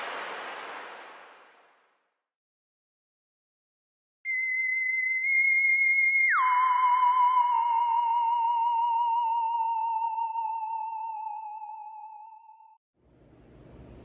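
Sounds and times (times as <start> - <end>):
theremin-like electronic tone: 4.3 - 12.8.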